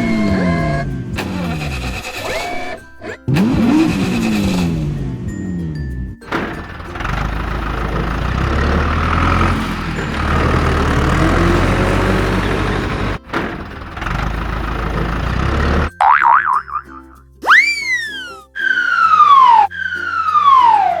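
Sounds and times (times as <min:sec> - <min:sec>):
warbling siren-like tone: 0:00.0 - 0:02.8, 0:17.4 - 0:21.0
heavy truck engine rumbling: 0:00.0 - 0:16.0, 0:16.7 - 0:21.0.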